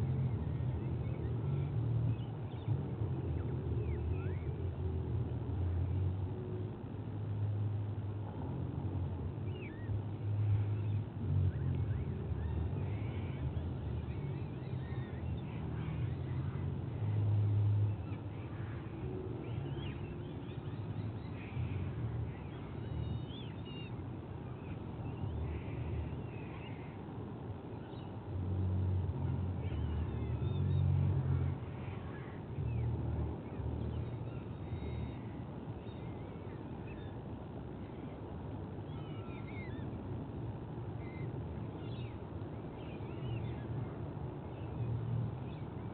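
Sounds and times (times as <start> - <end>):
steady low rumble: 0.0 - 45.9
thin chirping bird calls: 9.4 - 40.0.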